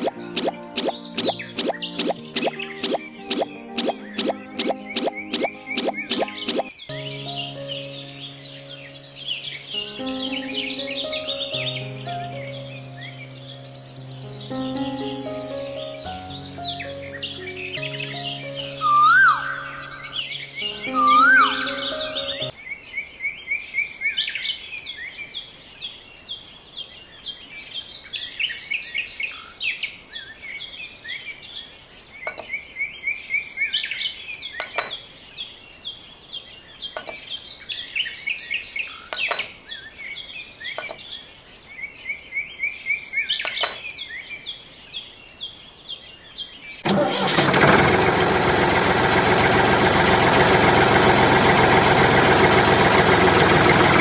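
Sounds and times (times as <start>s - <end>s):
sharp clicks: 0.0s - 6.7s
birds chirping: 0.0s - 46.8s
loud engine running: 46.9s - 54.0s.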